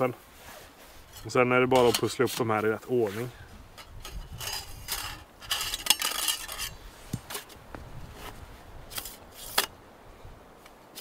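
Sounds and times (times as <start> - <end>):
metal pipes clattering and scraping: 1.0 - 7.6.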